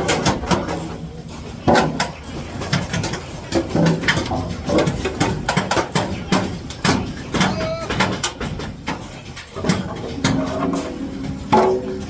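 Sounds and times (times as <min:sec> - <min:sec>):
knocks and clatter on metal formwork: 0:00.0 - 0:12.0
voices: 0:04.3 - 0:08.5.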